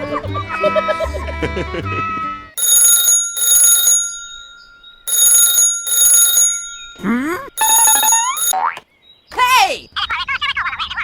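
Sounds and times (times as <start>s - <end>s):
alarm clock ringing: 2.6s - 8.6s.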